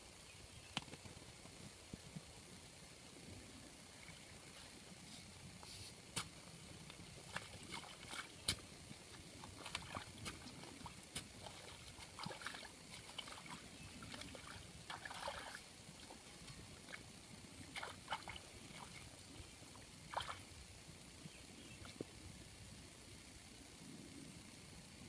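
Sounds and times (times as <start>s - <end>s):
water splashing and sloshing: 6.2s - 20.6s.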